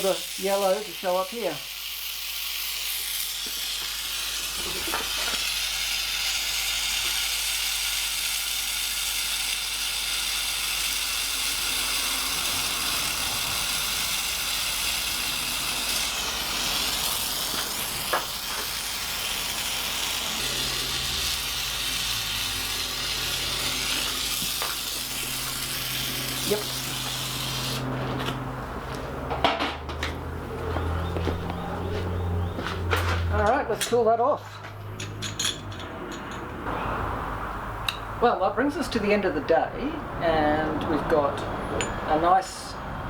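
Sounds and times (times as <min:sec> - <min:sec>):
gas burner flame hissing: 0:00.0 - 0:28.8.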